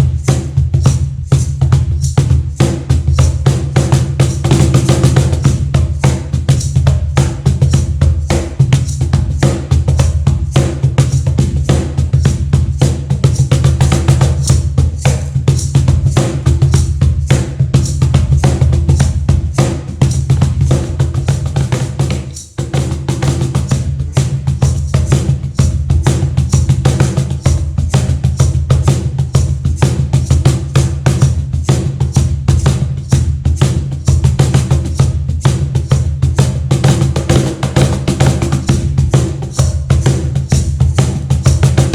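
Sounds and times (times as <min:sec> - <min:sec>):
cajon drumming: 0:00.0 - 0:41.9.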